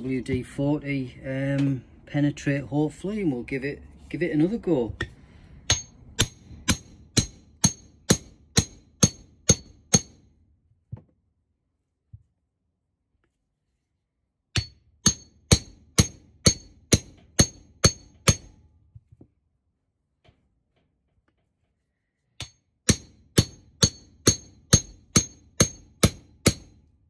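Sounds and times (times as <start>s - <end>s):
hammer striking metal: 5.0s - 10.3s, 14.5s - 18.6s, 22.4s - 26.8s.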